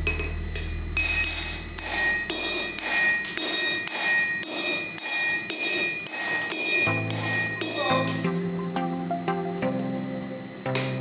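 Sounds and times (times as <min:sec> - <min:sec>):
anvil ringing: 0:00.0 - 0:08.4
hammer striking hot steel: 0:00.0 - 0:08.5.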